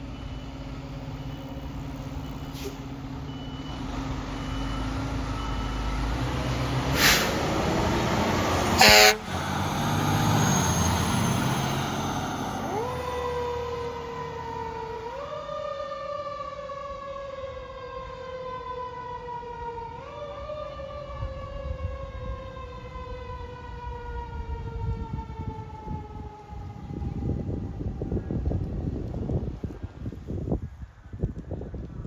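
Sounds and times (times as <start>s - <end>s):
fire engine driving: 0.0s - 30.9s
siren wailing: 8.8s - 28.6s.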